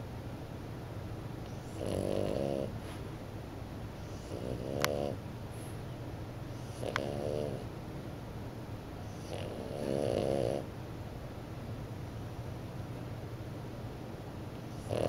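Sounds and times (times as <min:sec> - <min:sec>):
puppy snoring: 0:01.5 - 0:03.0, 0:04.0 - 0:05.2, 0:06.5 - 0:07.7, 0:09.0 - 0:10.7, 0:14.6 - 0:15.0.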